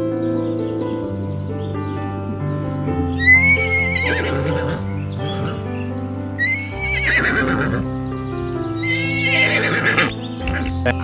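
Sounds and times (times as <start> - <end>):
soft background music: 0.0 - 11.0
horse whinnying: 3.1 - 5.8, 6.4 - 7.9, 8.8 - 10.8.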